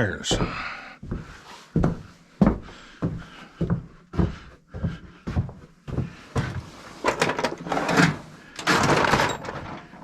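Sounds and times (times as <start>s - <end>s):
footsteps walking: 0.2s - 7.0s.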